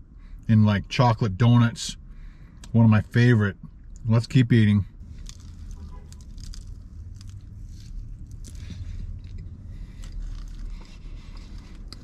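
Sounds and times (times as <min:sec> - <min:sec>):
low steady hum: 0:00.0 - 0:12.0
person chewing snack cake: 0:05.0 - 0:12.0.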